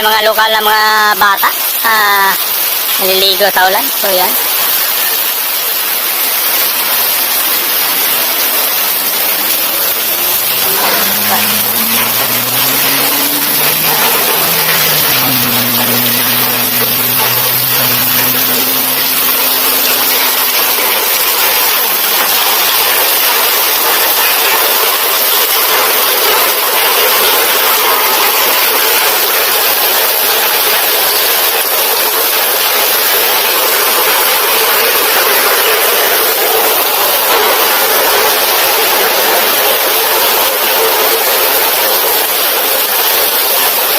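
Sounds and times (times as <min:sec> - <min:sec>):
heavy rain pouring: 0:00.0 - 0:43.9
low motor drone: 0:10.0 - 0:21.8.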